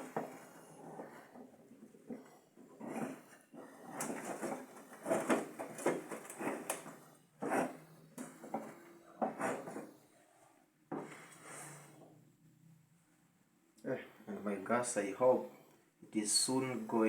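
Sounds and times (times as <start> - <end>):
stick scraping dough in a pot: 0.0 - 9.9.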